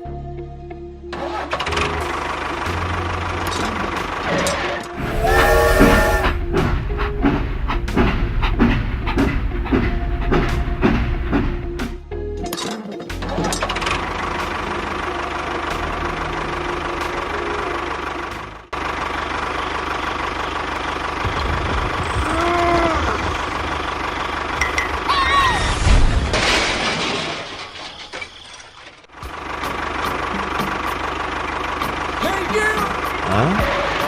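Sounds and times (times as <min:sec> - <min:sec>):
rising and falling tones: 0:05.0 - 0:06.4.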